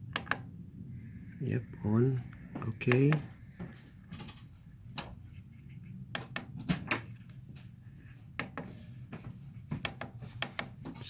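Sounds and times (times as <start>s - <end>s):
low steady hum: 0.0s - 11.0s
keypad buttons clicking: 0.1s - 0.5s, 6.2s - 6.6s, 9.8s - 10.8s.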